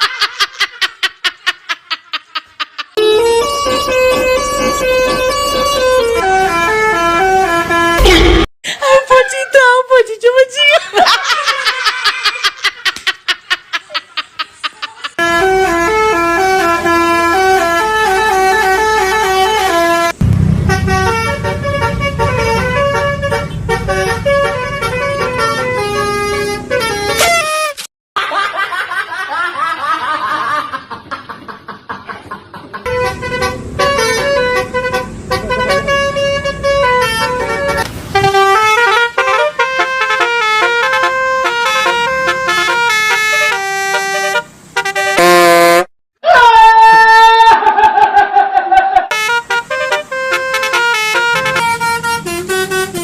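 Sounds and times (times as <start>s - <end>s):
musical bus horn melodies: 3.0s - 8.5s, 15.2s - 27.9s, 32.9s - 45.9s, 49.1s - 53.0s
low engine rumble: 15.4s - 27.0s, 32.8s - 39.6s.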